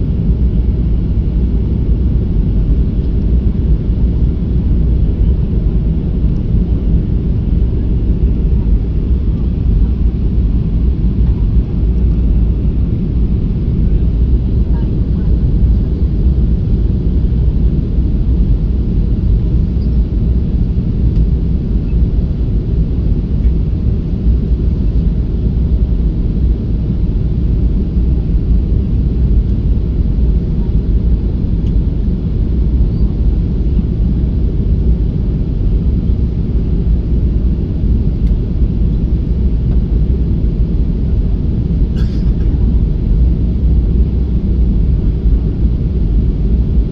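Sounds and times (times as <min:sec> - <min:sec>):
jet engines low rumble: 0:00.0 - 0:46.9.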